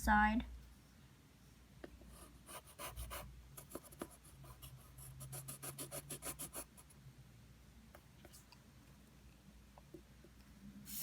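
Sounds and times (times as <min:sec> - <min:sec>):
drawing tool scratching paper: 0:02.2 - 0:06.8.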